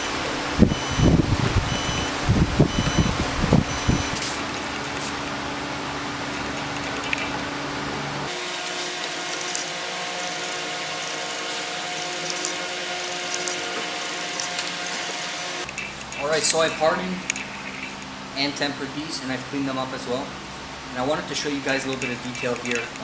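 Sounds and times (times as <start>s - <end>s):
electric shop machine humming: 8.3s - 15.7s.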